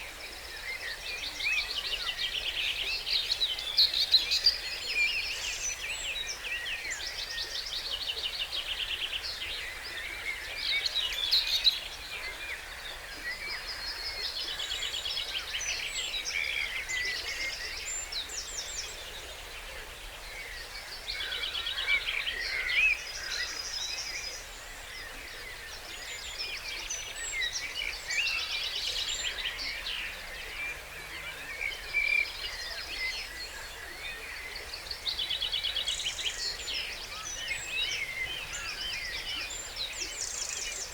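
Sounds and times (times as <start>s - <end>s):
songbirds singing: 20.4s - 40.9s.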